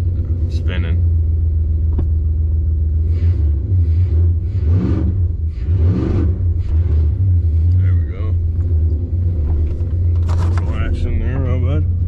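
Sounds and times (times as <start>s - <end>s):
truck engine revving: 3.0s - 12.0s.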